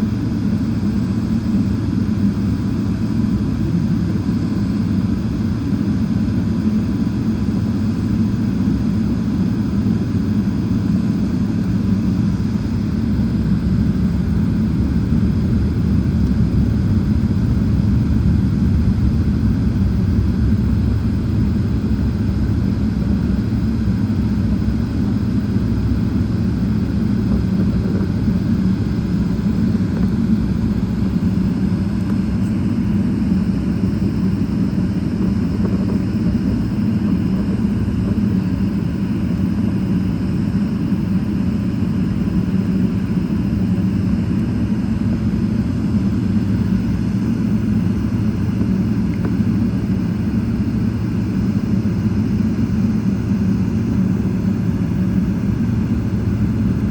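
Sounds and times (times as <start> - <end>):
jet engines rumbling: 0.0 - 56.9.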